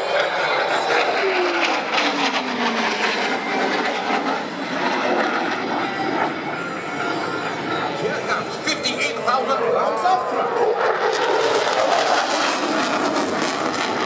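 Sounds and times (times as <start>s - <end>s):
jet engine rumble and hiss: 0.0s - 14.0s.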